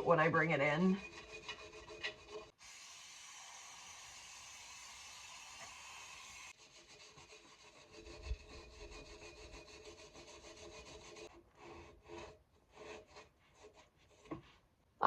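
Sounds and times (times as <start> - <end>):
wire brush scraping metal: 0.2 - 2.5.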